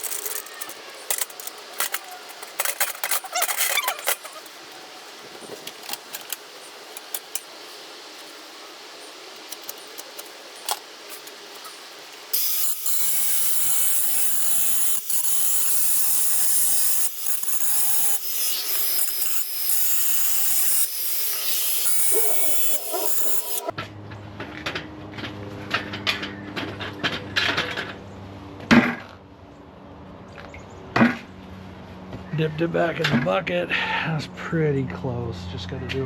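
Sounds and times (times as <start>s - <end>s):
power grinder grinding steel: 11.1s - 23.7s.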